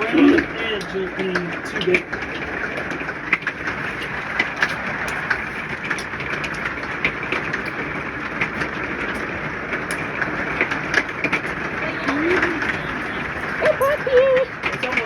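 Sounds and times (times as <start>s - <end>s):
hailstones ticking on roof: 0.0s - 15.0s
rain rushing on roof: 0.0s - 15.0s.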